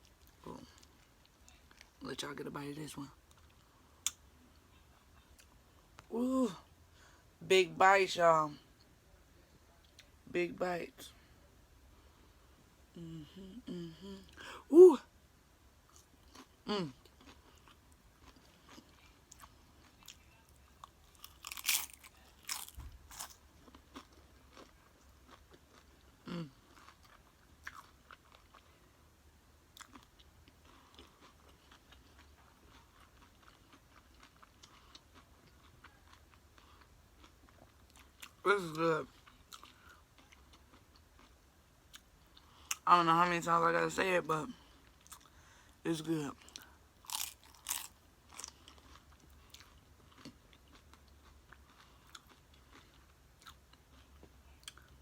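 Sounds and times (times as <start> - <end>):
low steady hum: 0.0 - 55.0
chewing crunchy food: 15.9 - 28.9, 29.7 - 42.8, 44.6 - 45.6, 46.4 - 55.0.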